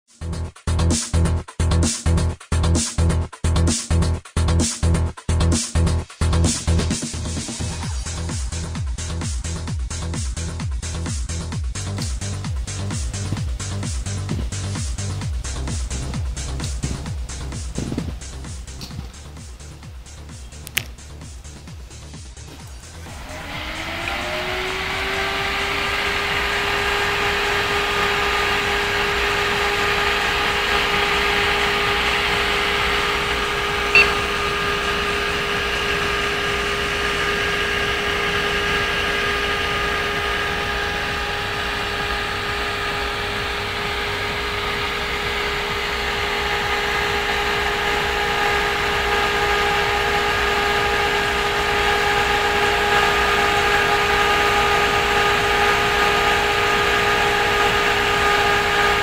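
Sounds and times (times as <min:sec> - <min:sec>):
cooling fan rushing air with whine: 0:07.6 - 0:59.0
sharp click: 0:20.6 - 0:21.0.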